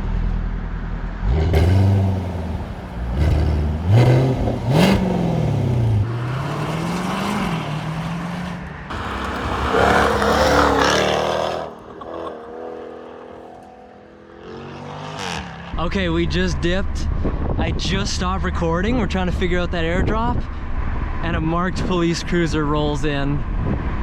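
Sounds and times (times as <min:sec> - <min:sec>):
car engine revving: 0:01.2 - 0:15.8.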